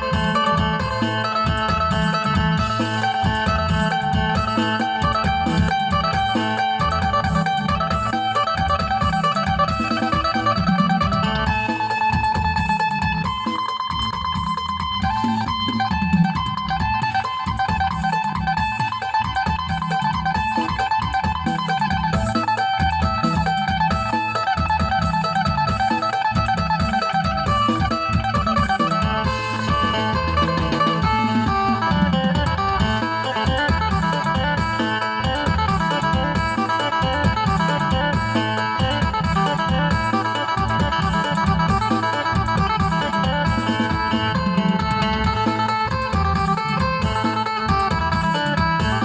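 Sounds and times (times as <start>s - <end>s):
plucked lute melody: 0.0s - 49.0s
repeating bass line: 0.0s - 49.0s
steady low beat: 0.0s - 49.0s.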